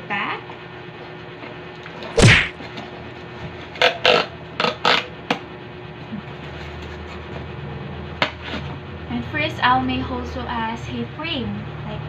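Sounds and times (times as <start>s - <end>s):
heavy thump: 2.2s - 2.5s.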